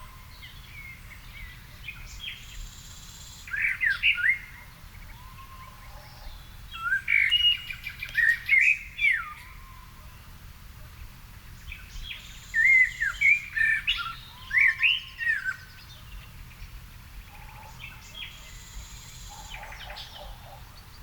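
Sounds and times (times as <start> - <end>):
quieter bird whistles and chirps: 12.1 - 15.7.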